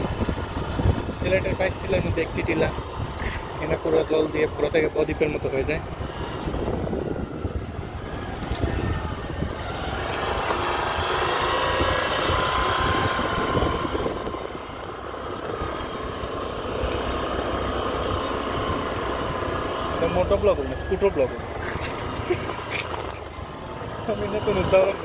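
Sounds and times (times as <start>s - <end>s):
wind rumbling on microphone: 0.0s - 19.6s
scooter engine: 0.0s - 25.0s.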